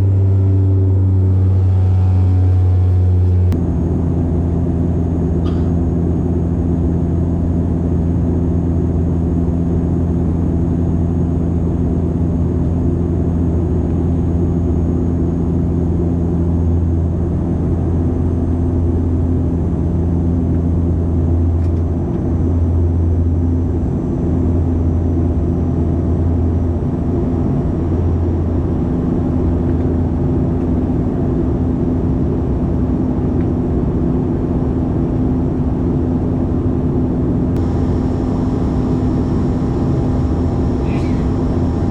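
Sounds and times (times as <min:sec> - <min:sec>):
vehicle engine drone: 0:00.0 - 0:41.9.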